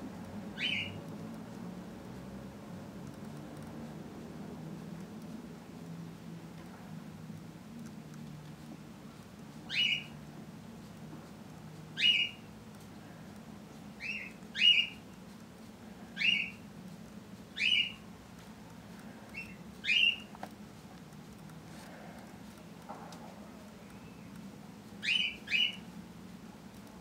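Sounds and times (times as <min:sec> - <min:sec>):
faint low hum: 0:00.0 - 0:27.0
bird chirping: 0:00.6 - 0:01.0, 0:09.7 - 0:10.2, 0:12.0 - 0:12.5, 0:14.0 - 0:15.0, 0:16.2 - 0:16.6, 0:17.6 - 0:18.0, 0:19.3 - 0:20.3, 0:23.8 - 0:24.4, 0:25.0 - 0:25.9.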